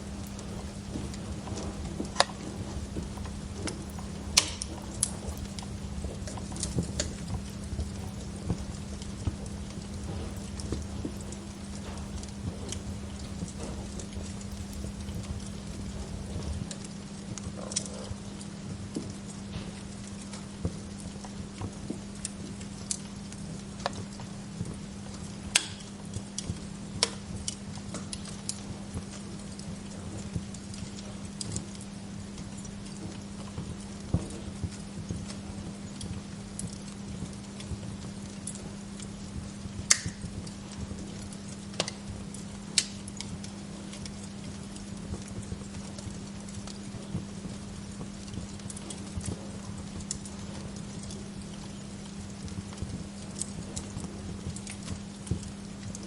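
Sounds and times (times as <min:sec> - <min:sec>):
steady low hum: 0:00.0 - 0:16.7
wood fire crackling: 0:00.0 - 0:16.7, 0:29.2 - 0:56.0.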